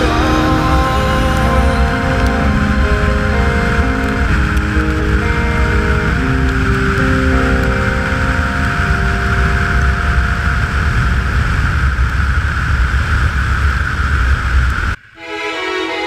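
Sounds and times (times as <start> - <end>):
background music: 0.0 - 6.3
heavy wind noise: 0.0 - 15.0.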